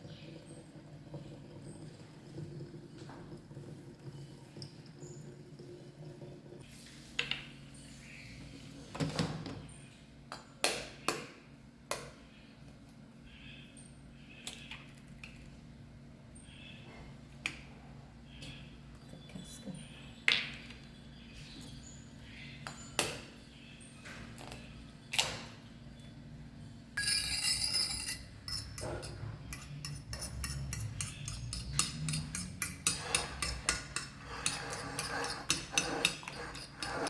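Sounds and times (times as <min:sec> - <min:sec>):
utensils clinking against dishes: 0:27.0 - 0:37.0.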